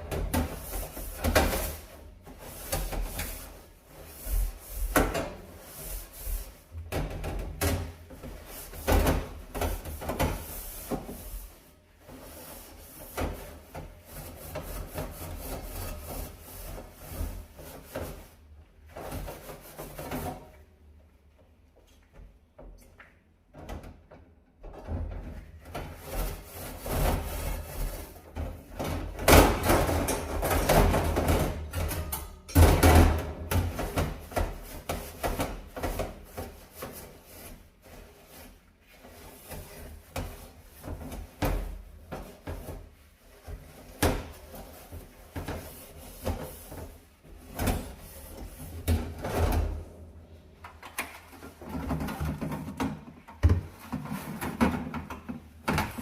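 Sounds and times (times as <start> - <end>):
brush scrubbing stove: 0.1 - 7.0, 7.8 - 20.4, 25.9 - 28.4, 33.6 - 49.3.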